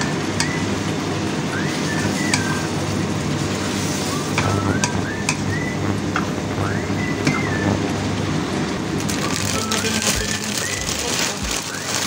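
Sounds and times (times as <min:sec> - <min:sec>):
steady low hum: 0:00.0 - 0:11.1
food sizzling in hot oil: 0:00.0 - 0:12.0.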